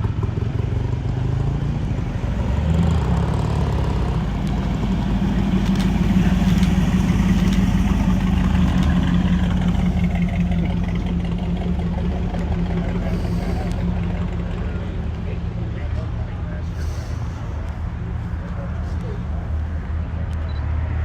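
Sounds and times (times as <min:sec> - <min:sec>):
car engine idling: 0:00.0 - 0:20.6.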